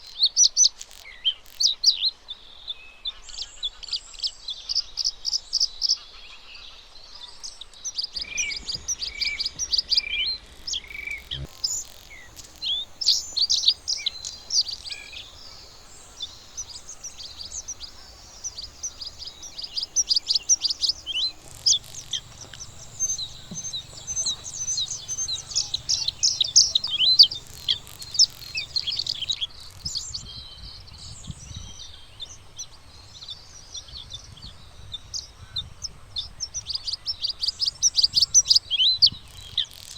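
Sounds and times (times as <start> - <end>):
bird singing chirps and trills: 7.9 - 32.4.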